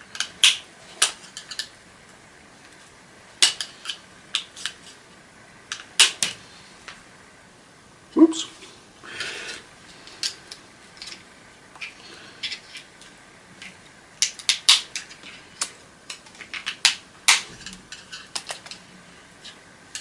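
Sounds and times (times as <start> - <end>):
plastic parts snapping and clicking: 13.6 - 18.8.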